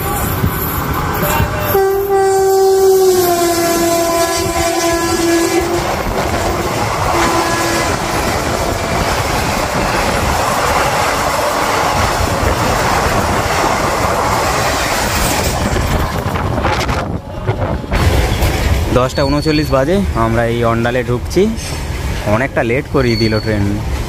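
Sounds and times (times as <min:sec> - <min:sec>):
train wheels on rails: 0:00.0 - 0:24.0
train horn: 0:01.3 - 0:09.0.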